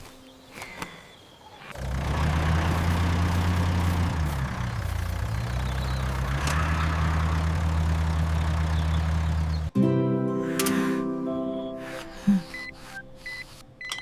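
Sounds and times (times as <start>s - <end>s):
vehicle engine running: 1.7s - 9.8s.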